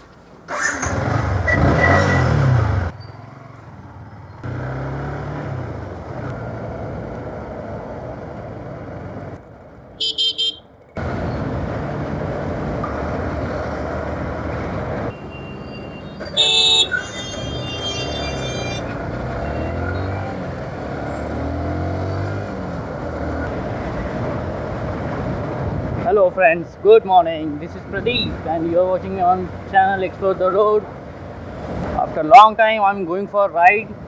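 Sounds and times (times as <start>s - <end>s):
vehicle engine: 0.0s - 32.5s
road traffic: 0.0s - 34.0s
vehicle horn honks: 10.0s - 10.7s, 15.2s - 19.9s.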